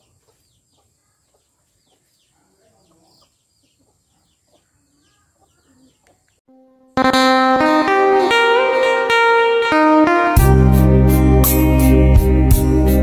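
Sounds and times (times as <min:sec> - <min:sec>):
birds chirping: 0:00.0 - 0:06.4.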